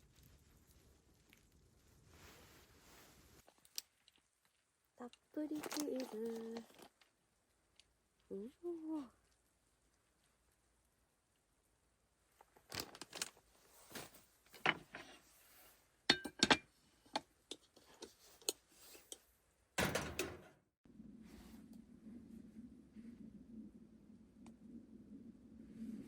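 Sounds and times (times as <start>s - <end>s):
cooking gear clicking and clinking: 19.8s - 20.6s.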